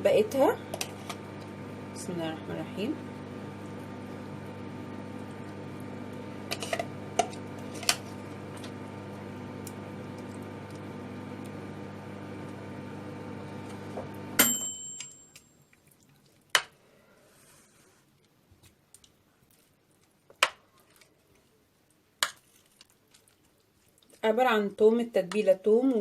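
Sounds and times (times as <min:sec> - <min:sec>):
electric motor humming: 0:00.6 - 0:14.4
switch click with high ring: 0:14.4 - 0:15.4.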